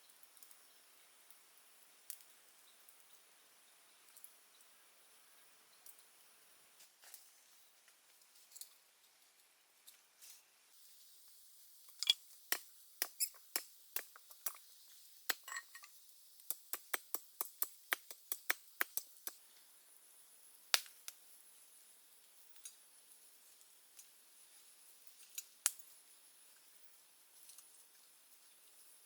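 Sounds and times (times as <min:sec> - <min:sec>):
faint high hiss: 0:09.8 - 0:29.0
sharp taps: 0:16.5 - 0:19.4.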